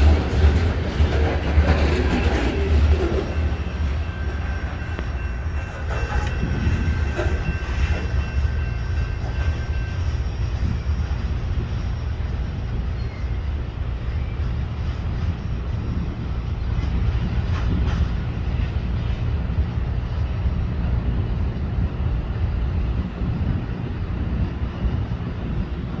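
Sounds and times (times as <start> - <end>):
freight train wheels rumbling on rail: 0.0 - 26.0
high wheel squeal: 1.1 - 15.0.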